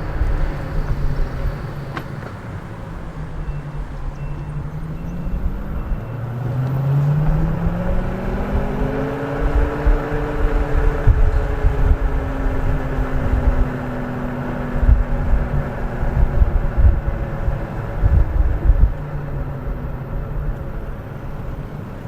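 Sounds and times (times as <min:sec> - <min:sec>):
road and wind rumble: 0:00.0 - 0:22.0.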